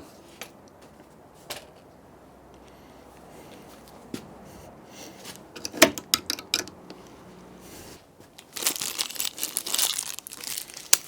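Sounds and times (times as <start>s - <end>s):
tools clicking and knocking: 5.6s - 7.0s.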